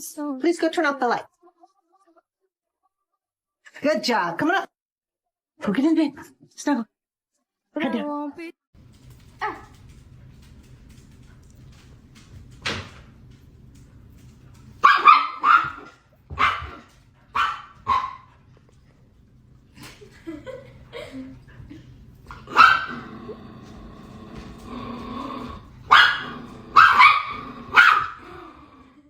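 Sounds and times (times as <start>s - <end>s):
dog barking: 14.8s - 18.4s, 22.3s - 23.1s, 25.9s - 28.3s.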